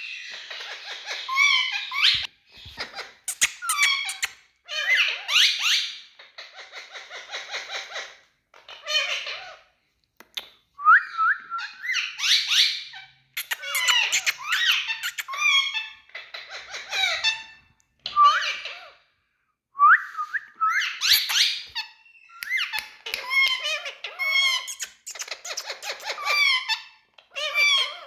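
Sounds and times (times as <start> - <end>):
parrot squawking: 0.6 - 5.8, 11.8 - 17.5, 21.0 - 28.0.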